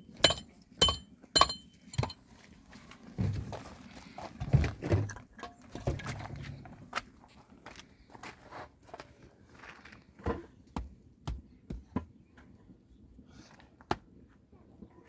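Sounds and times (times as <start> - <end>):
dishes clinking: 0.0 - 2.2
dull knocks and shuffling: 2.8 - 5.1.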